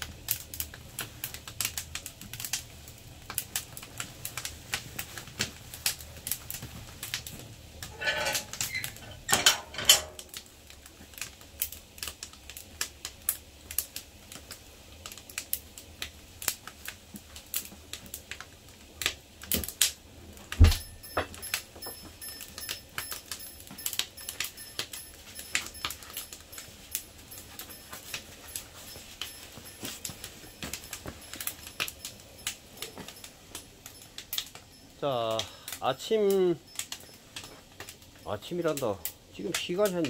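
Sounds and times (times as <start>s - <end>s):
sharp clicks and light knocks: 20.5s - 40.0s.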